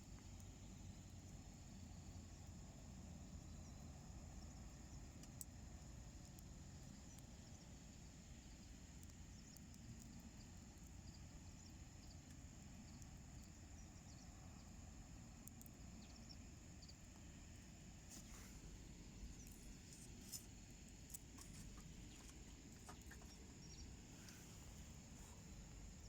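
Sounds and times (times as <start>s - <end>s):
wood fire crackling: 16.7s - 26.0s.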